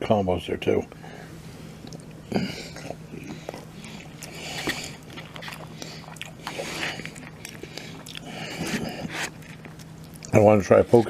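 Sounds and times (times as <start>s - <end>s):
faint steady hum: 0.0s - 11.0s
person chewing food: 1.8s - 10.4s.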